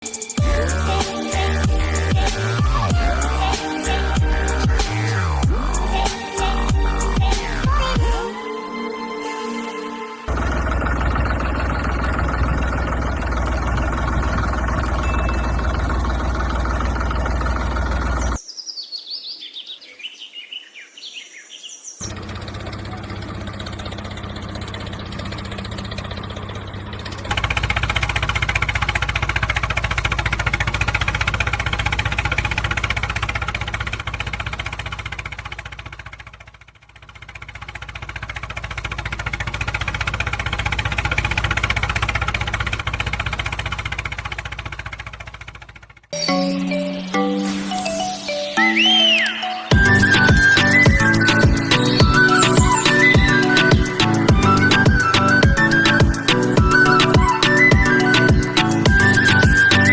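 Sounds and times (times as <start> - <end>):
low engine hum: 0.4 - 8.3, 10.3 - 18.4, 22.0 - 46.3, 49.2 - 59.9
birds chirping: 10.8 - 27.1, 46.2 - 59.9.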